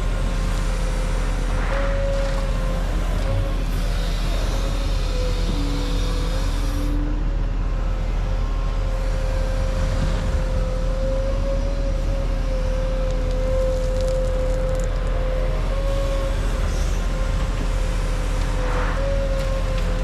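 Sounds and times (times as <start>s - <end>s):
bulldozer diesel engine rumbling: 0.0s - 20.0s
high whine: 0.0s - 20.0s.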